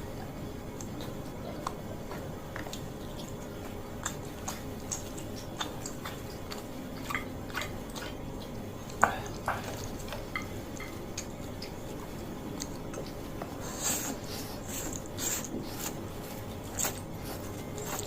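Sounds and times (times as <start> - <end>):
person chewing noodles: 0.0 - 18.0
mouth clicks and smacks: 0.8 - 10.2.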